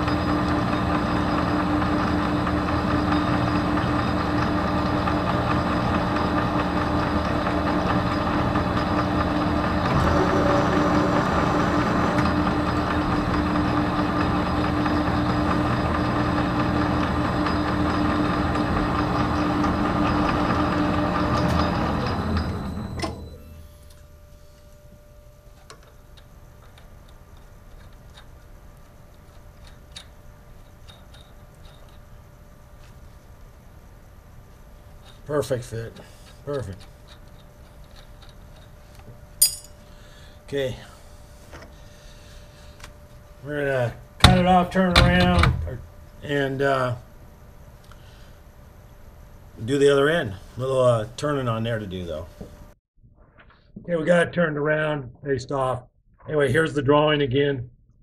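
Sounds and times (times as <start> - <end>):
metal lathe running: 0.0 - 22.8.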